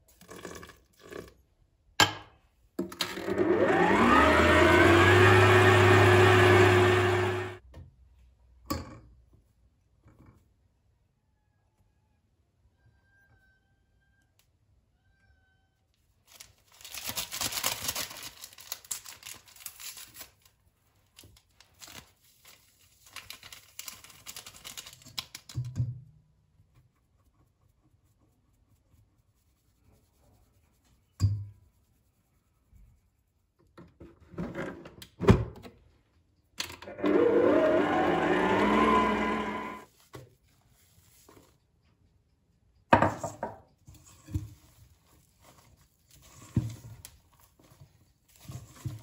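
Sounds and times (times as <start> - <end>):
rustling handling noise: 16.1 - 25.5, 39.9 - 41.9, 43.9 - 49.0.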